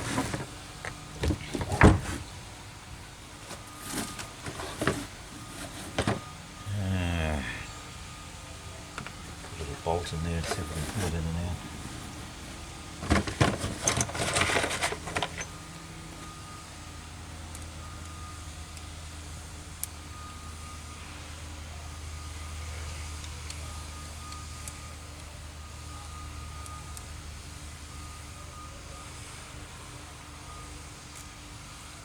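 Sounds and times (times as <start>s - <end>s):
steady low hum: 0.0s - 16.3s
metal parts and tool clinking: 10.4s - 15.6s.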